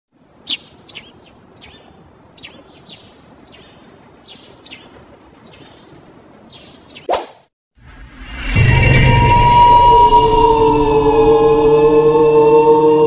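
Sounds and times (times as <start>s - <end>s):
faint outdoor background hiss: 0.1s - 7.1s
birds chirping: 0.2s - 7.1s.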